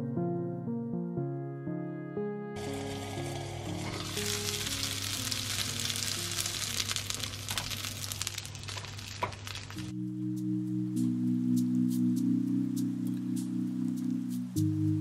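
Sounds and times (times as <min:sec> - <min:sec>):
soft lo-fi music: 0:00.0 - 0:08.9, 0:09.8 - 0:15.0
dumplings sizzling in oil: 0:02.6 - 0:09.9.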